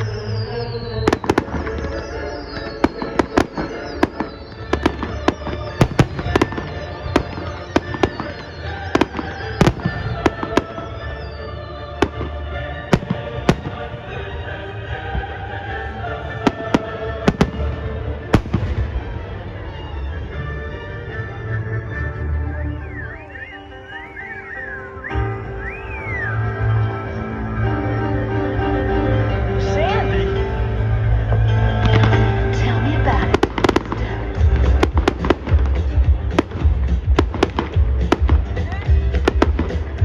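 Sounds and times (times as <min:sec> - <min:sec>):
music playing: 0:00.0 - 0:40.0
fireworks bangs and pops: 0:01.0 - 0:10.8, 0:16.5 - 0:19.1, 0:33.4 - 0:40.0.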